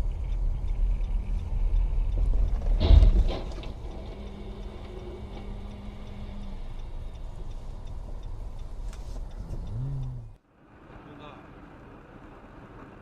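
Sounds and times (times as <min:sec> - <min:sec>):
car road and engine noise: 0:00.0 - 0:13.0
loud thump: 0:02.6 - 0:03.7.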